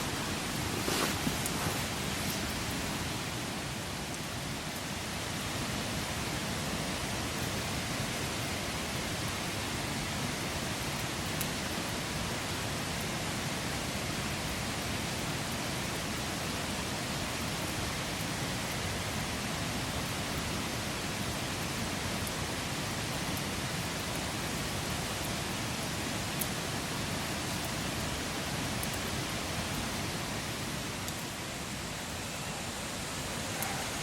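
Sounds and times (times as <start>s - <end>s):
wood crackling: 0.0s - 3.4s
campfire flame hissing: 0.0s - 34.0s.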